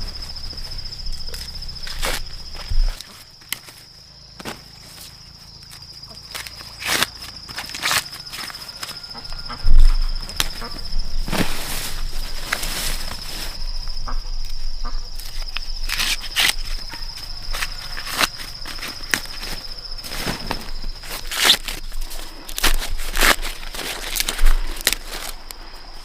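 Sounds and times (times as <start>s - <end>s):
rustles and crunches: 0.0s - 26.0s
high-pitched insect drone: 3.9s - 22.3s.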